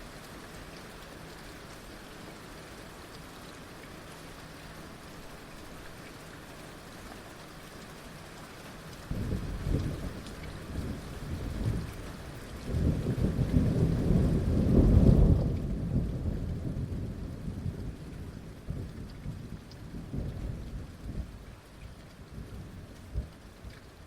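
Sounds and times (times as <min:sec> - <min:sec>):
heavy rain falling: 0:00.0 - 0:24.0
thunder rumbling: 0:12.6 - 0:21.4.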